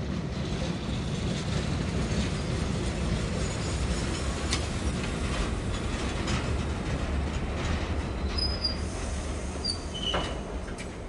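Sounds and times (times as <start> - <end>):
freight train rumbling: 0.0 - 11.0
wheel squeal: 8.2 - 8.9, 9.6 - 10.4.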